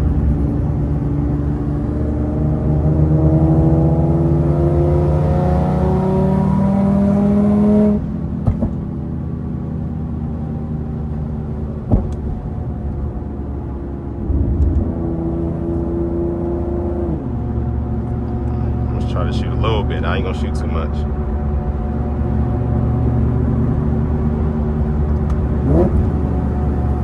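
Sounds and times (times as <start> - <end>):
car engine accelerating: 0.0 - 27.0
exhaust pops: 8.4 - 9.0, 11.7 - 13.1, 23.6 - 27.0.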